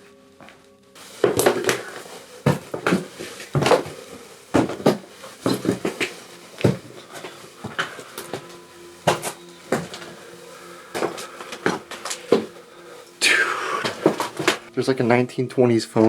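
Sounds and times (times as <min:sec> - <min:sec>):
footsteps on hard floor: 0:00.4 - 0:14.7.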